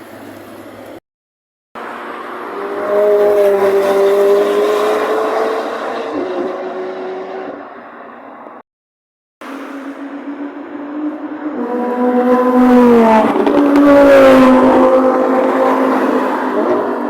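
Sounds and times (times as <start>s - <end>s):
sports car driving past: 9.5s - 17.0s.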